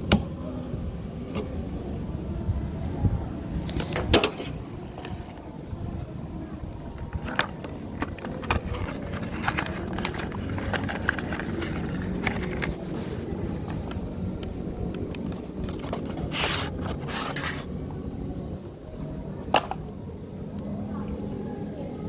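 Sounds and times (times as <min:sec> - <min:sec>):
steady low hum: 0:00.0 - 0:22.0
parts scraping and clicking by hand: 0:07.0 - 0:17.7.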